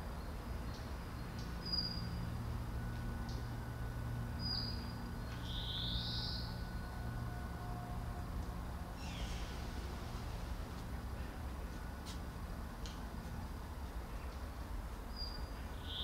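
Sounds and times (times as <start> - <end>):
steady low hum: 0.0 - 16.0
birds chirping: 4.4 - 6.7, 9.0 - 9.6, 15.1 - 16.0.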